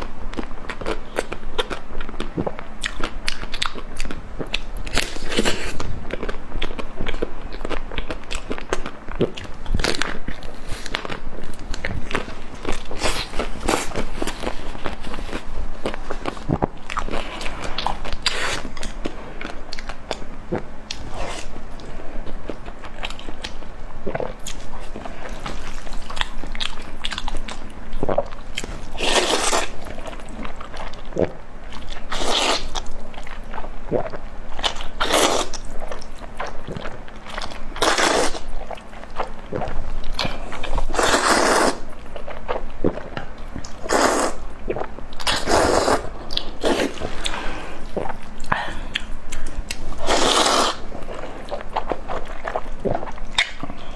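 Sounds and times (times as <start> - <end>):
crunchy food chewing: 0.0 - 53.9.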